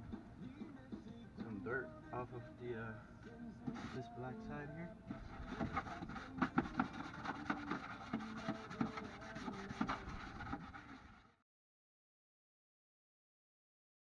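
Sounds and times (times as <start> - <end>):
brush scrubbing: 3.6 - 4.2, 5.1 - 11.3.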